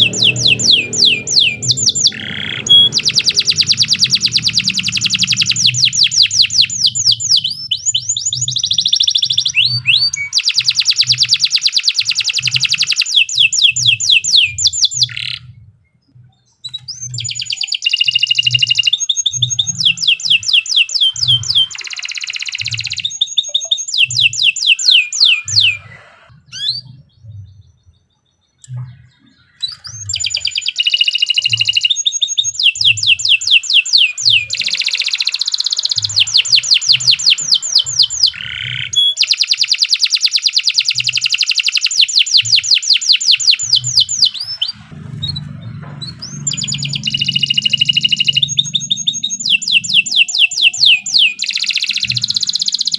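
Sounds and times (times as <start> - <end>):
steady low pulse: 0.0 - 7.8, 43.7 - 49.4
canary singing trills: 0.0 - 52.9.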